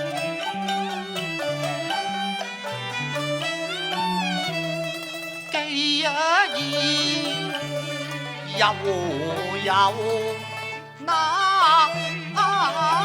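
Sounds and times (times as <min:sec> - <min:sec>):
opera instrumental accompaniment: 0:00.0 - 0:13.0
person singing with vibrato: 0:05.4 - 0:13.0.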